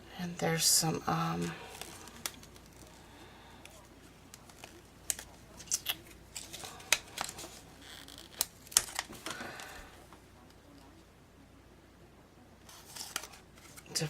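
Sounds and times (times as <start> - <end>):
plastic sleeve crinkling: 1.3 - 10.0, 12.7 - 14.0.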